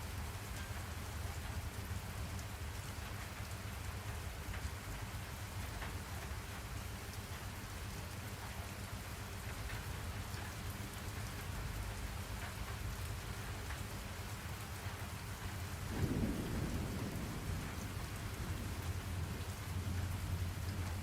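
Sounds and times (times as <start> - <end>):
steady rain: 0.0 - 21.0
thunder rumbling: 15.8 - 21.0.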